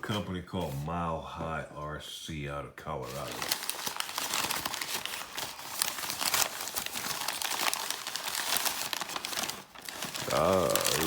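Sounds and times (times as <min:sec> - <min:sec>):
packaging bag crinkling: 0:03.1 - 0:11.0.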